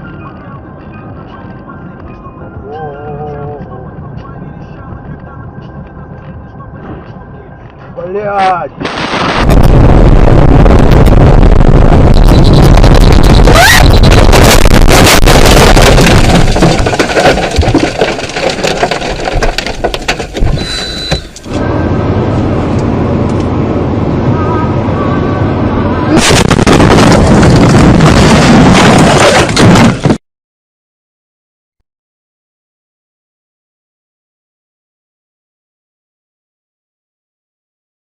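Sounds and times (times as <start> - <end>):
road and engine rumble: 0.0 - 30.2
car crash impacts: 26.2 - 30.2.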